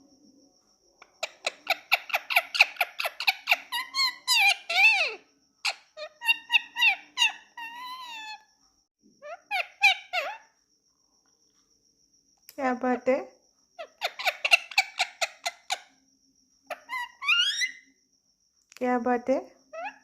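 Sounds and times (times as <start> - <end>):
parakeet squawking: 1.0 - 8.4, 9.2 - 10.4, 13.8 - 15.9, 16.7 - 17.8.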